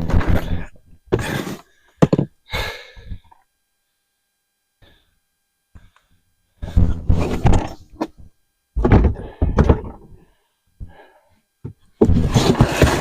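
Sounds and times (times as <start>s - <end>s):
toolboxes thunking and knocking: 6.7s - 8.2s, 8.8s - 10.2s, 11.6s - 13.0s.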